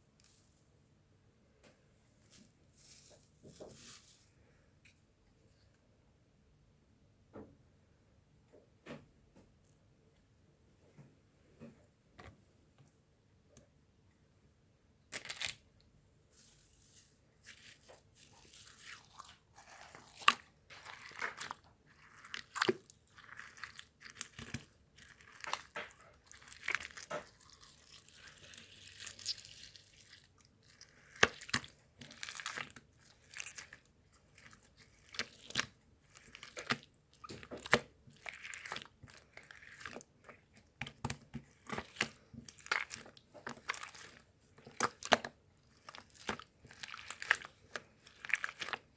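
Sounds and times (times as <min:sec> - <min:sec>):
close-up crunching and crackling: 0:15.1 - 0:15.7, 0:16.4 - 0:48.9.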